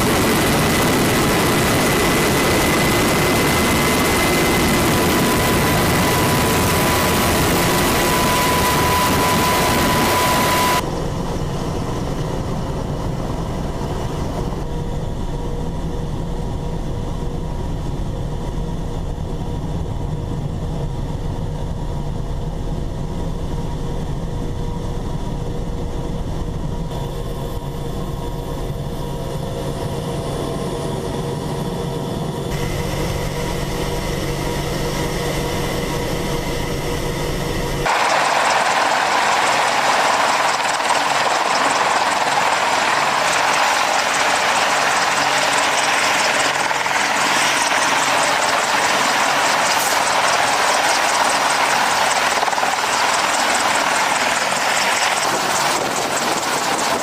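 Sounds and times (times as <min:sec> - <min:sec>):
helicopter engines and rotor: 0:00.0 - 0:57.0.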